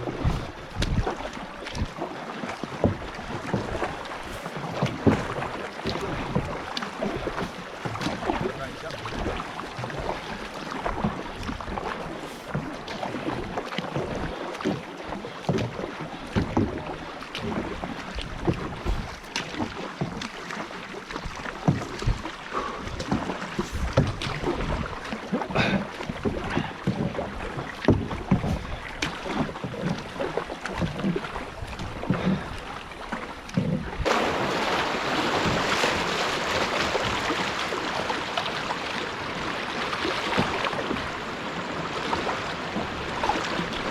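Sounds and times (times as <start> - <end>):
wind on microphone: 0.0 - 2.0
paddle splashes and knocks: 0.0 - 43.9.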